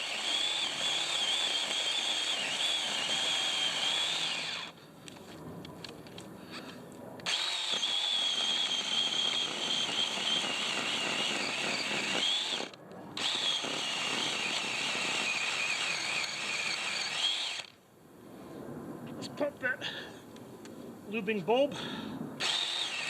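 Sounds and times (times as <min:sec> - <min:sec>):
electric chainsaw whining: 0:00.0 - 0:04.8, 0:07.2 - 0:17.8, 0:22.4 - 0:23.0.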